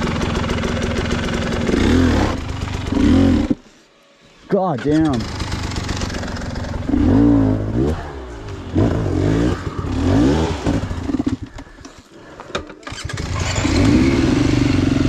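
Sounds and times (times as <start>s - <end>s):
dirt bike engine revving: 0.0s - 3.6s, 4.7s - 11.6s, 12.9s - 15.0s.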